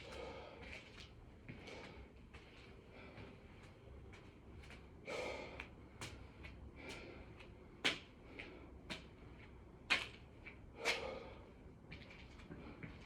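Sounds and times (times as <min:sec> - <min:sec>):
man breathing hard: 0:00.0 - 0:00.8, 0:05.0 - 0:07.4, 0:10.8 - 0:11.6.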